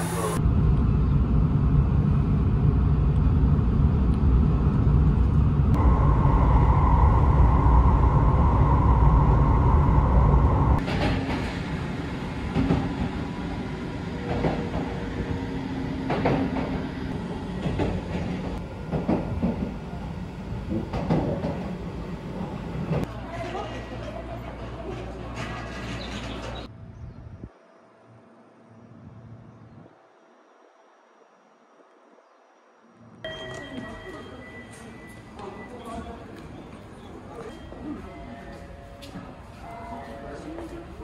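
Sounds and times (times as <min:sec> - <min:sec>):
train running low rumble: 0:00.0 - 0:27.5
steady higher hum: 0:05.8 - 0:10.8.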